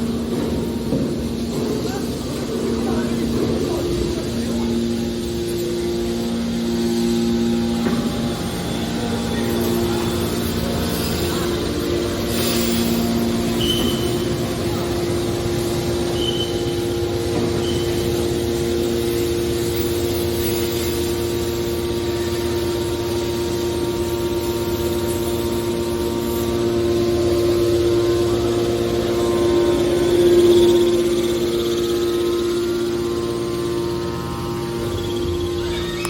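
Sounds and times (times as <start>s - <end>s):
hydraulic baler humming: 0.0s - 36.0s
short high squeaks: 13.6s - 14.2s, 35.0s - 36.0s.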